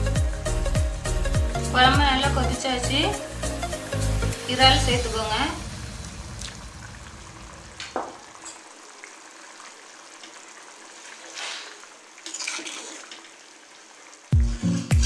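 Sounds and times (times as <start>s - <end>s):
curry simmering and bubbling: 5.6s - 14.3s
ladle scraping a pan: 11.0s - 13.2s.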